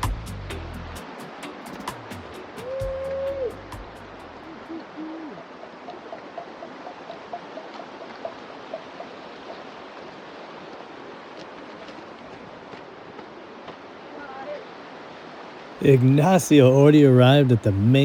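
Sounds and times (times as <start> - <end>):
creek water running over rocks: 4.3 - 18.0.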